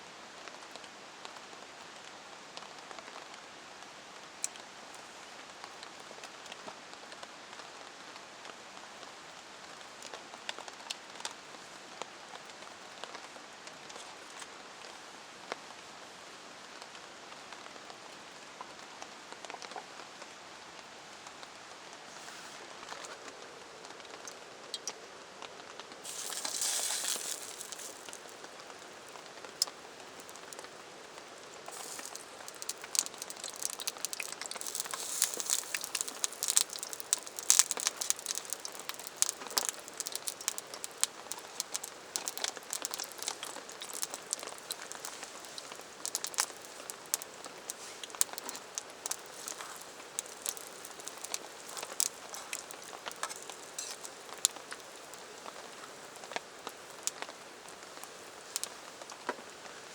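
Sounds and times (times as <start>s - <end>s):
rain hiss: 26.0s - 59.9s
sharp crackles and clicks: 26.0s - 59.9s.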